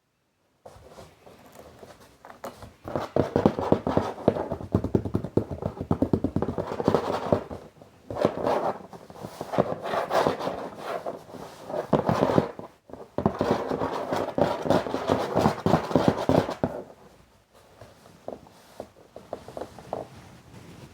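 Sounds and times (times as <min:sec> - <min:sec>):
tapping and scratching on box: 0:01.5 - 0:17.0.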